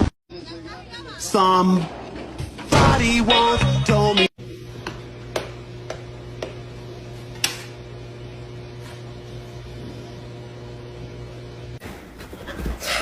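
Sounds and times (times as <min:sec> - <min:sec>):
steady low hum: 0:04.4 - 0:12.0.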